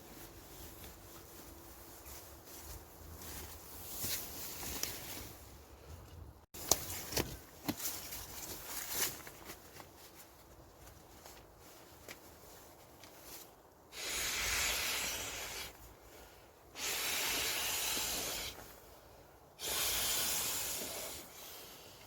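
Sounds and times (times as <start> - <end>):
hissing rushes of air: 13.9 - 15.8, 16.7 - 18.7, 19.6 - 21.9.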